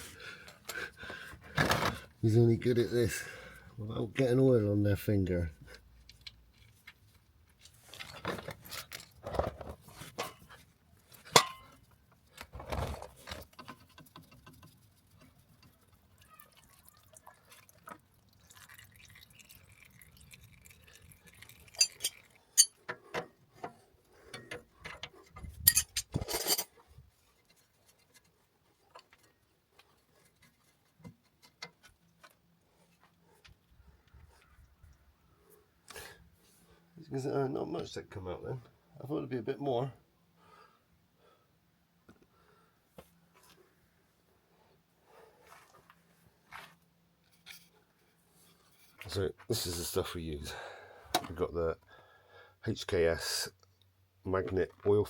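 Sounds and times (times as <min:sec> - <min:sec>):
metallic clinks and knocks: 0:11.3 - 0:11.8, 0:21.7 - 0:23.0, 0:24.3 - 0:26.8
oil draining: 0:16.2 - 0:22.9.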